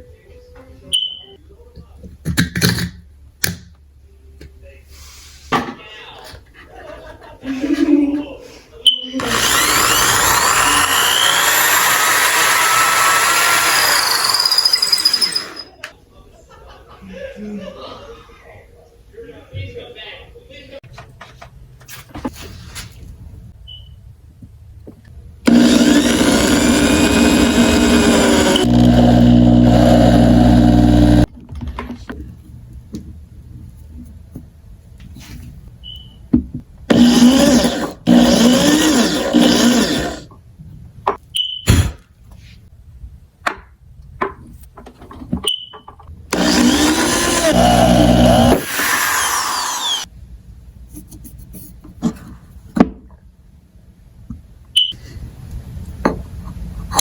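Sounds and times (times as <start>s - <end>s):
power tool motor running: 9.2s - 15.7s, 25.5s - 31.3s, 36.9s - 40.3s, 46.3s - 50.1s.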